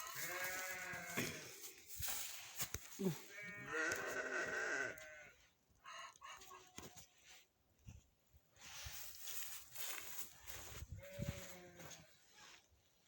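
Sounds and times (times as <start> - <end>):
sheep bleating: 0.0 - 1.5, 3.3 - 5.4, 11.0 - 12.1.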